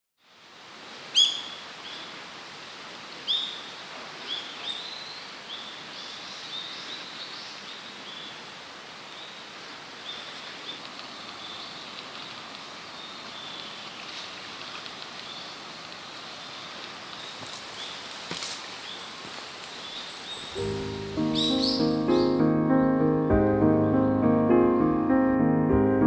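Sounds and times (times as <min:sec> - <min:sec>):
background hiss: 0:00.2 - 0:25.8
wild bird calls: 0:01.1 - 0:02.2, 0:18.8 - 0:22.4.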